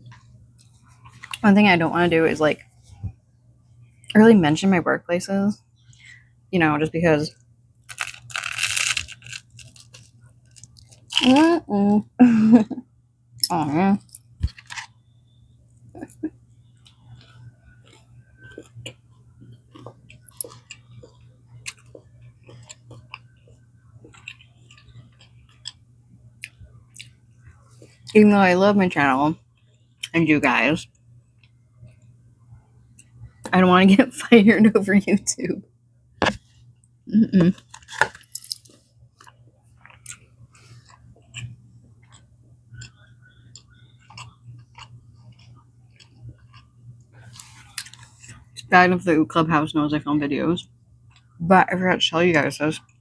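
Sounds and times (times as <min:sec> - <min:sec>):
chewing food: 0:00.0 - 0:01.4, 0:07.9 - 0:11.6, 0:13.4 - 0:28.2, 0:37.5 - 0:48.7, 0:51.0 - 0:51.4
low hum: 0:00.0 - 0:38.7.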